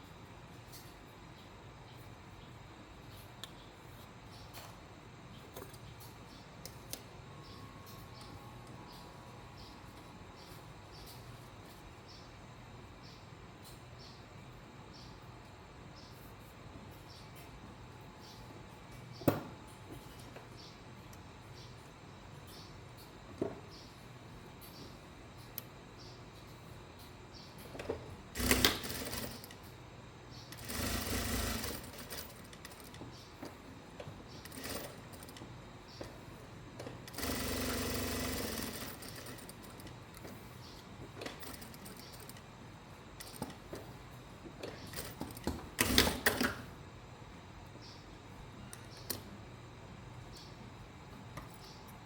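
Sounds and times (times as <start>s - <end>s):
sewing machine stitching: 28.4s - 29.5s, 30.5s - 33.0s, 34.4s - 35.4s, 37.1s - 39.8s, 45.0s - 46.6s.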